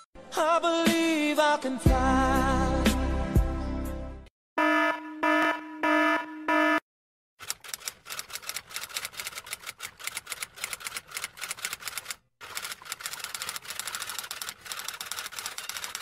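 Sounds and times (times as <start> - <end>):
rapid irregular clicking: 7.4 - 16.0.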